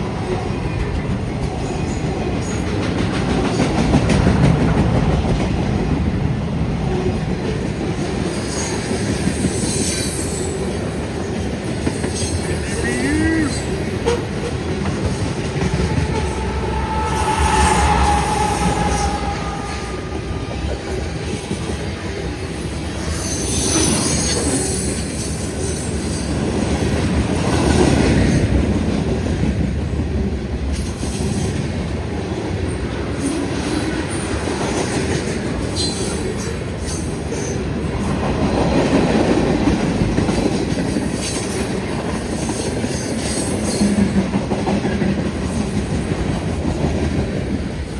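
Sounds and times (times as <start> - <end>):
train wheels clattering: 13.4 - 29.8
metallic wheel squeals: 15.6 - 21.6.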